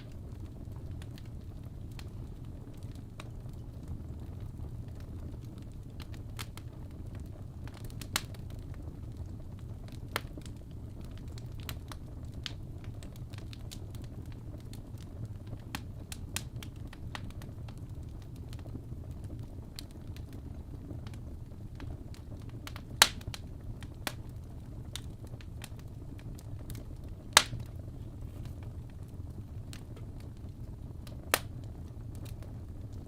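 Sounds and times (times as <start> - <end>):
low rumble of flames: 0.0 - 33.0
wood fire crackling: 0.0 - 33.0
sharp pops and snaps: 22.7 - 23.4, 27.3 - 27.8, 31.3 - 31.5.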